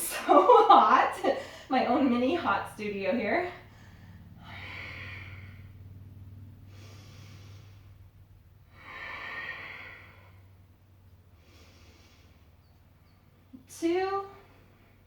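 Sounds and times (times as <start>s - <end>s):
steady low hum: 0.0s - 15.0s
woman breathing: 1.3s - 1.9s, 3.6s - 6.0s, 6.6s - 13.5s.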